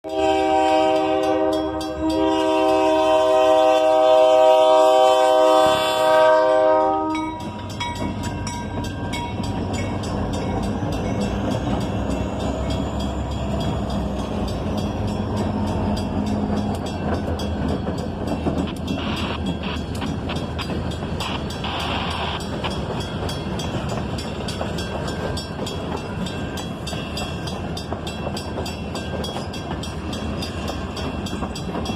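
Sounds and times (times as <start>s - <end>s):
locomotive air horn chord: 0.0s - 7.5s
diesel locomotive engine running: 0.1s - 31.9s.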